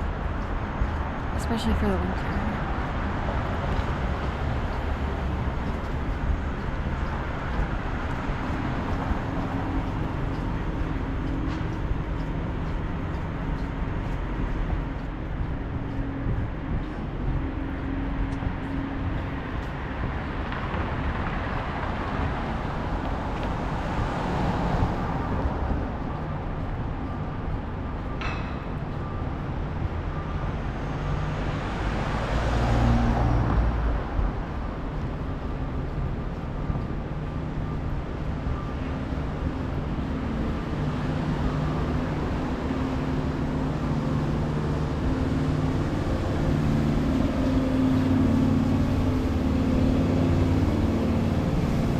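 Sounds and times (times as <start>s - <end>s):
cars and engine hum: 0.0s - 51.9s
vehicle passing: 30.1s - 36.3s, 38.7s - 51.9s.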